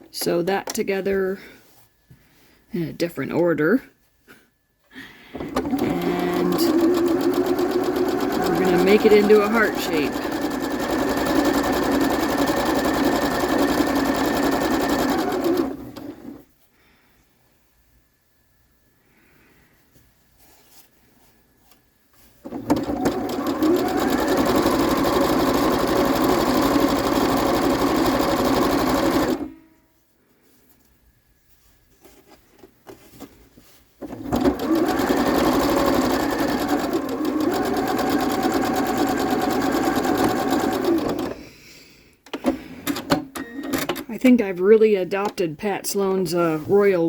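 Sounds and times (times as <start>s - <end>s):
sewing machine stitching: 5.4s - 16.4s, 22.4s - 29.6s, 34.0s - 41.4s.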